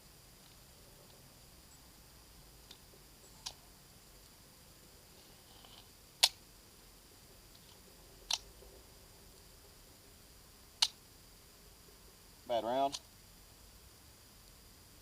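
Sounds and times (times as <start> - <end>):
pistol action clicks: 6.2 - 6.4, 10.8 - 11.0.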